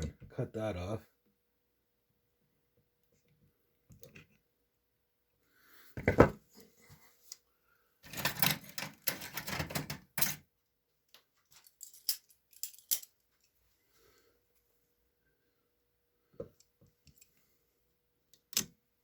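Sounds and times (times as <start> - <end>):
metal tools clicking and rattling: 8.1 - 10.4, 11.5 - 13.5.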